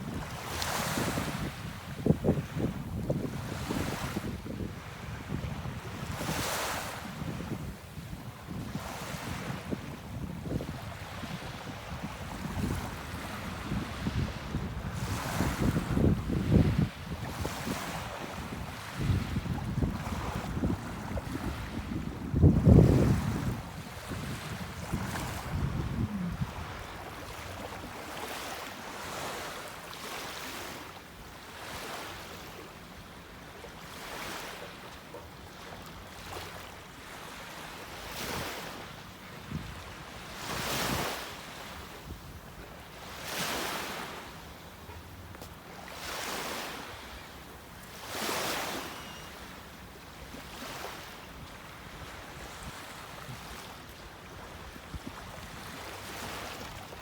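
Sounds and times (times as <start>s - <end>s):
wind rumble on microphone: 0.0s - 28.0s, 39.4s - 41.2s
small waves breaking on beach: 0.0s - 57.0s.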